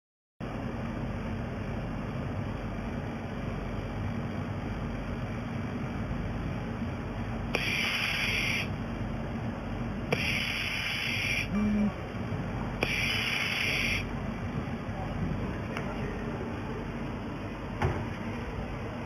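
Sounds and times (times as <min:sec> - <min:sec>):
machinery humming: 0:00.4 - 0:19.0
welding hiss: 0:07.6 - 0:08.7, 0:10.1 - 0:11.5, 0:12.8 - 0:14.1.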